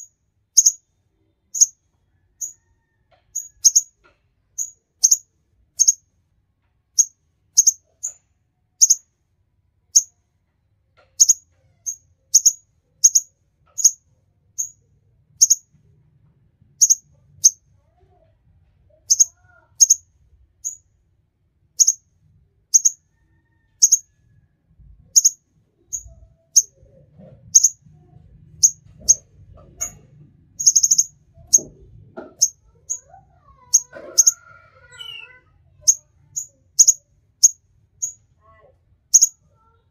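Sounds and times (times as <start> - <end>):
songbird chirping: 0.0 - 6.0, 7.0 - 8.2, 8.8 - 9.1, 11.0 - 15.8, 16.8 - 17.6, 19.0 - 21.0, 21.8 - 22.1, 22.7 - 24.2, 25.0 - 38.4, 39.1 - 39.6
faint low rumble: 24.7 - 32.2.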